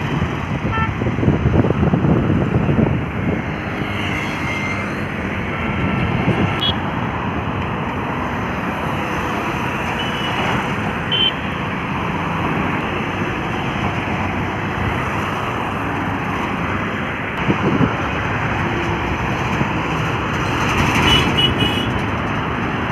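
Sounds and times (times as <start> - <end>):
highway traffic rumble: 0.0 - 22.9.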